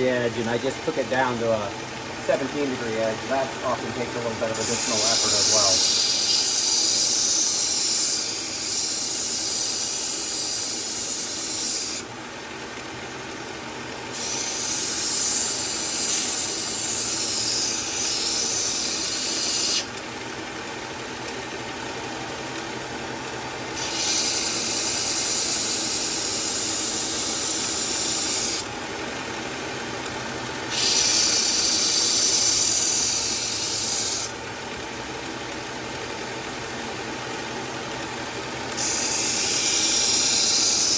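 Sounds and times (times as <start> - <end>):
belt sharpener motor hum: 0.2 - 35.6, 37.8 - 40.9
knife grinding on belt sharpener: 4.5 - 12.0, 14.1 - 19.9, 23.7 - 28.6, 30.7 - 34.3, 38.7 - 40.9.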